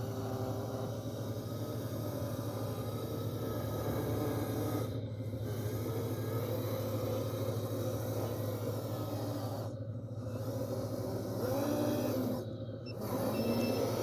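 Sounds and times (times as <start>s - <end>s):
machine engine drone: 0.0s - 14.0s.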